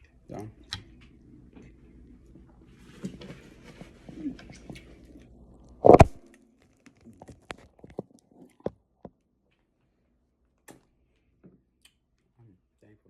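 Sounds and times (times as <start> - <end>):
person eating crunches: 5.0 - 8.6.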